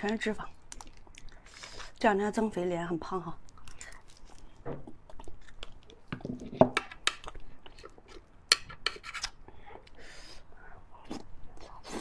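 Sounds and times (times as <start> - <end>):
wet chewing and mouth smacks: 0.6 - 2.0, 3.4 - 6.2.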